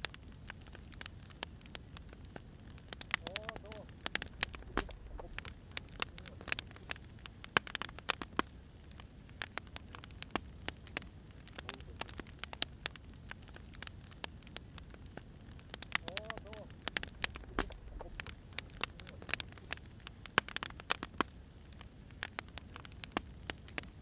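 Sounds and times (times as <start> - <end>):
wood fire crackling: 0.0 - 24.0
low steady rumble: 1.6 - 7.5, 8.7 - 20.4.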